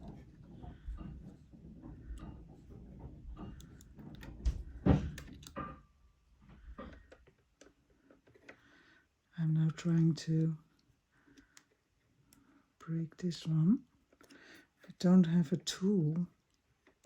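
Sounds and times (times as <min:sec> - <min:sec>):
small parts clicking and knocking: 0:00.0 - 0:08.7, 0:10.4 - 0:12.6, 0:14.0 - 0:14.7, 0:16.4 - 0:17.0.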